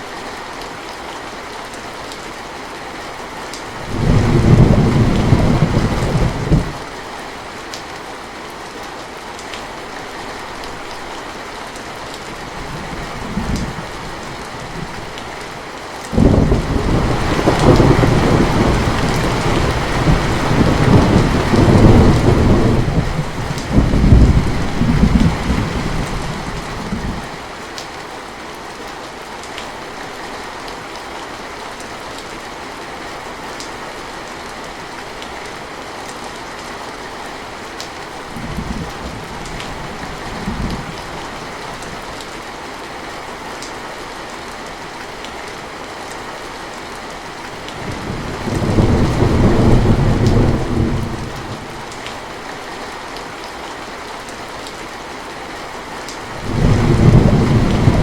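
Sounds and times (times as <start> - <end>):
steady rain: 0.0 - 58.0
thunder rumbling: 3.8 - 6.8, 16.1 - 27.4, 47.8 - 52.0, 56.3 - 58.0.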